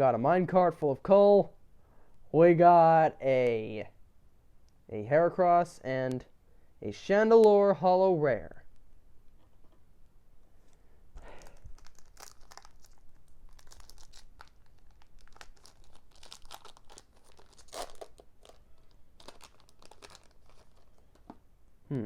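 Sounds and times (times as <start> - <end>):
foil wrapper tearing and crinkling: 11.2 - 21.3.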